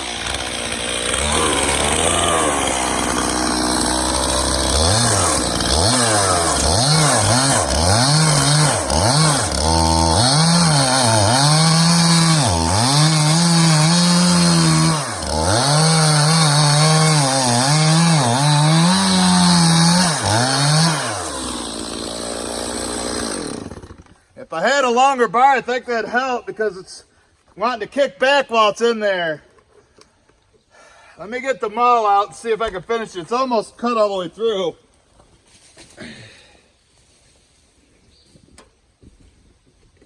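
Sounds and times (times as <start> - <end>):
chainsaw cutting wood: 0.0 - 24.3.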